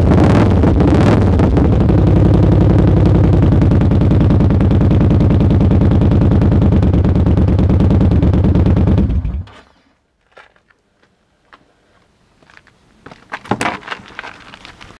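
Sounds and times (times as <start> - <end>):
motorcycle engine running: 0.0 - 9.5
rustling: 9.5 - 15.0.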